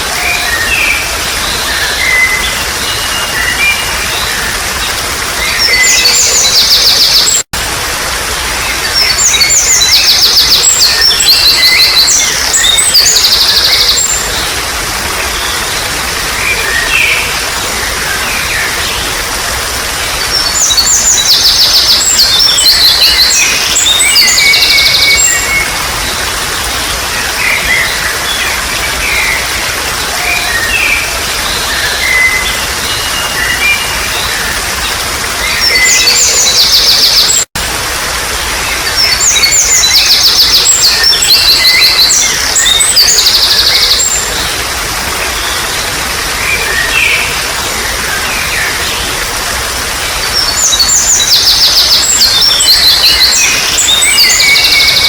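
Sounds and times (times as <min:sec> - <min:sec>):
water trickling: 0:00.0 - 0:55.0
songbirds trilling: 0:38.6 - 0:55.0.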